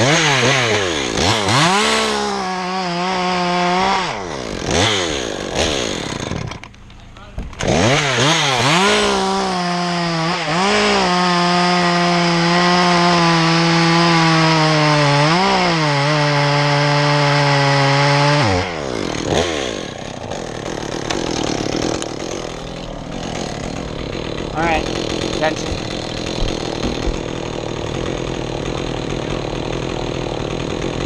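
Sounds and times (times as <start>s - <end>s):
chainsaw cutting wood: 0.0s - 31.0s.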